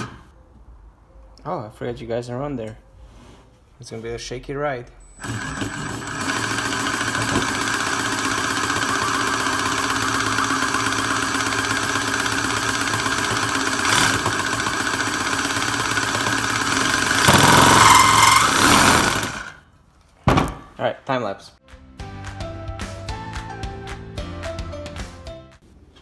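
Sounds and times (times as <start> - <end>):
power cutting tool whining: 0.0 - 0.3, 5.1 - 19.6.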